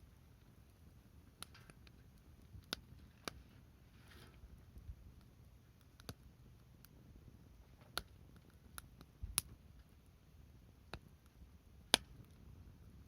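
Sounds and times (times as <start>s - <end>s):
firewood crackling pops: 1.3s - 3.4s, 4.8s - 7.0s, 7.7s - 9.8s, 10.8s - 12.4s.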